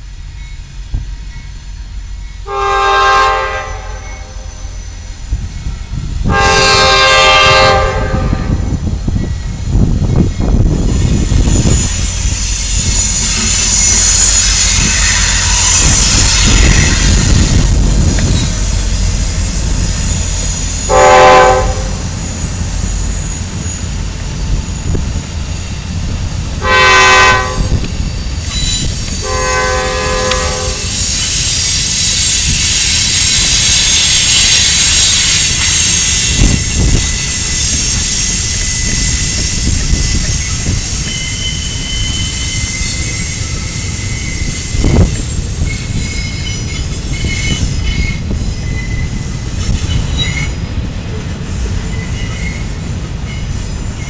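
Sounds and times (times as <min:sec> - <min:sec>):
freight train rumbling past: 0:00.0 - 0:54.0
train air horn blasts: 0:02.4 - 0:04.8, 0:06.2 - 0:08.8, 0:20.9 - 0:22.1, 0:26.6 - 0:27.9, 0:29.2 - 0:31.6
high-pitched wheel noise: 0:03.7 - 0:26.5, 0:27.1 - 0:50.8.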